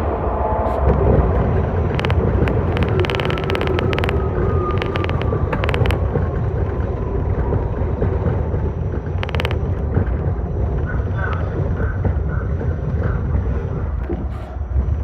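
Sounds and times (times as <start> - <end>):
subway train rumble: 0.0 - 15.0
rapid clicks: 0.9 - 10.2
faint falling whine: 1.2 - 11.0.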